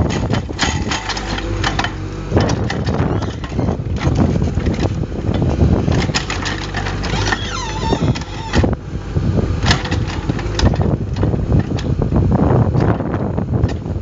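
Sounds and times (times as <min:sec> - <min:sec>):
diesel engine running: 0:00.0 - 0:14.0
wavering squeal: 0:07.1 - 0:08.8.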